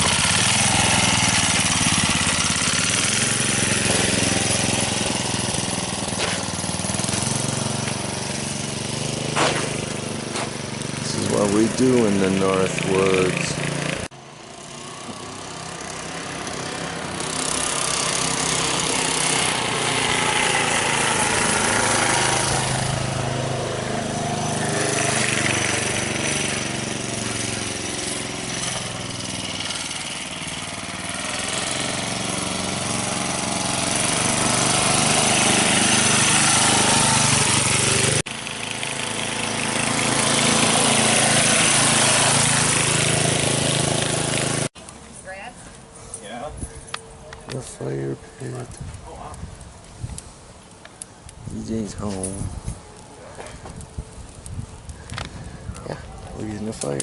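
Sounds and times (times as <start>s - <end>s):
small bike engine passing: 0.0s - 57.0s.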